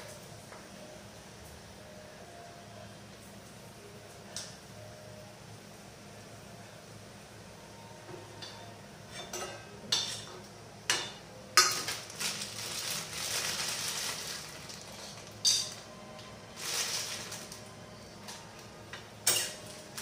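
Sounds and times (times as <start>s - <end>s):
papads sizzling in hot oil: 9.9s - 20.0s.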